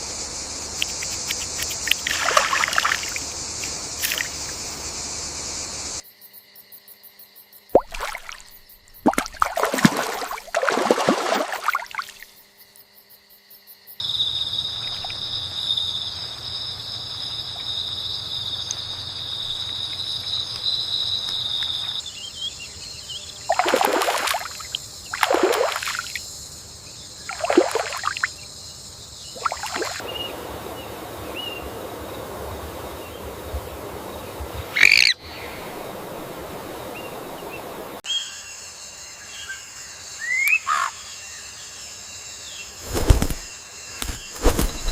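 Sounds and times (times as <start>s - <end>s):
high insect drone: 0.0s - 44.9s
short rushes of noise: 42.8s - 44.9s.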